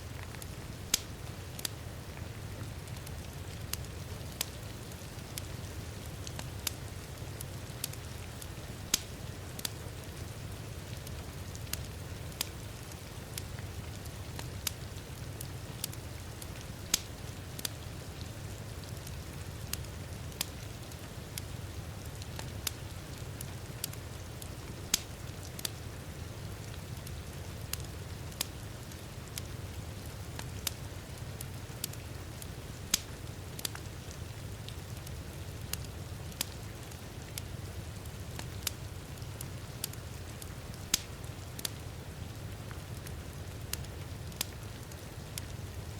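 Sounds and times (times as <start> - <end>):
steady rain: 0.0 - 45.9
wood fire crackling: 0.0 - 45.9.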